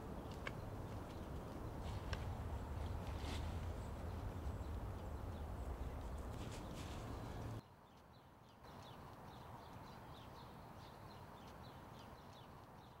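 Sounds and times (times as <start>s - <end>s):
small birds chirping: 0.0s - 13.0s
low rumble: 1.6s - 6.4s.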